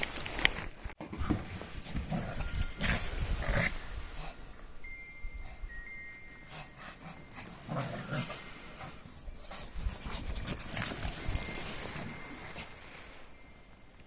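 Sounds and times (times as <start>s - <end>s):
small dogs scuffling: 7.4s - 12.9s.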